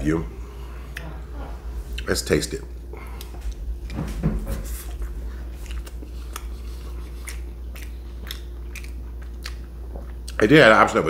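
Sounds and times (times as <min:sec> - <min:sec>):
person chewing: 0:01.9 - 0:02.1, 0:02.9 - 0:10.4
wet mouth clicks and smacks: 0:07.1 - 0:10.4.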